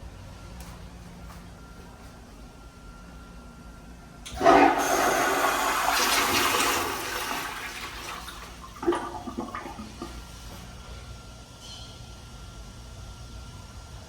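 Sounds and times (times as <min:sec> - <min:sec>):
toilet flushing: 0:04.3 - 0:10.6.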